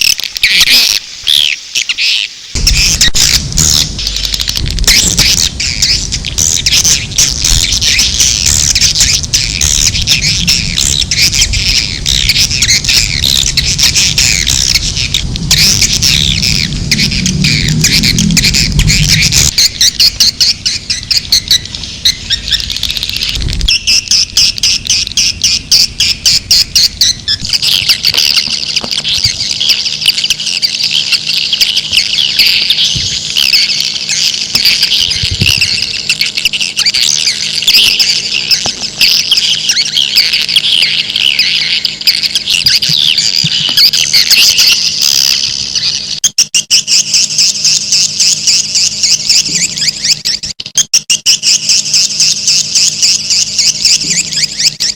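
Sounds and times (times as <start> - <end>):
swiftlets chirping and twittering: 0.0 - 54.9
rapid even ticking: 2.6 - 30.1.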